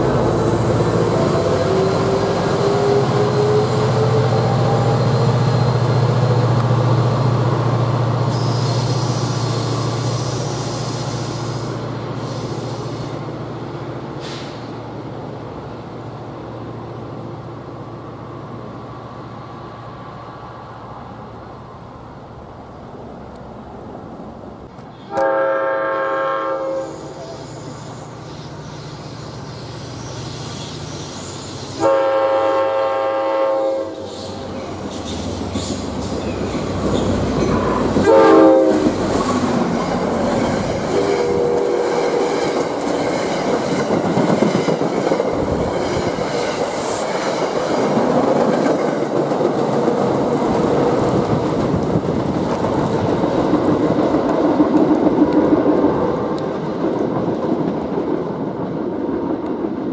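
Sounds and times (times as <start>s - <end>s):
train wheels rolling on rails: 0.0s - 59.9s
train horn blasts: 25.0s - 27.6s, 31.8s - 34.1s, 38.0s - 39.0s, 40.9s - 42.6s.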